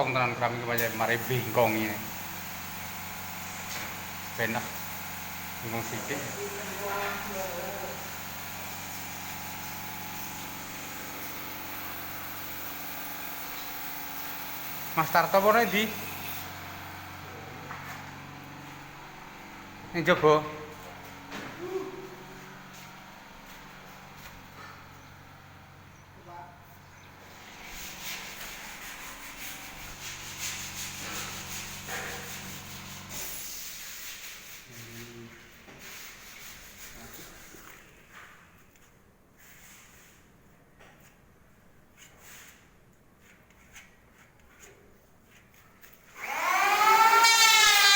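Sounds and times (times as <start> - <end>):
sanding strokes: 3.4 - 16.7, 27.2 - 38.0, 43.2 - 47.9.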